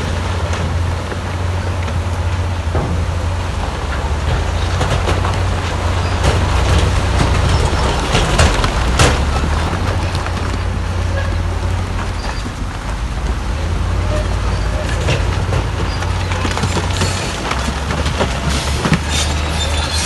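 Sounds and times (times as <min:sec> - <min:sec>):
diesel machinery rumbling: 0:00.0 - 0:20.0
sharp knocks and clatters: 0:00.0 - 0:20.0.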